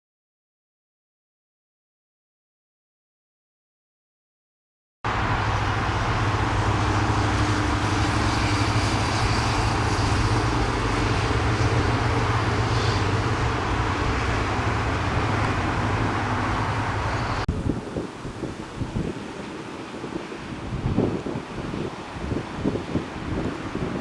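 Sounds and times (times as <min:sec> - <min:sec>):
jet engines roaring: 0:05.1 - 0:24.0.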